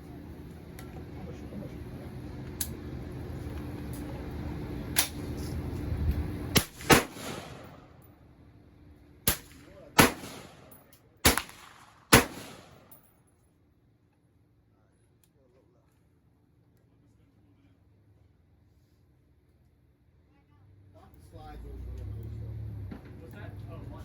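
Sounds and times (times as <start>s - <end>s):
gunshots with echo: 6.6s - 7.8s, 9.3s - 12.9s.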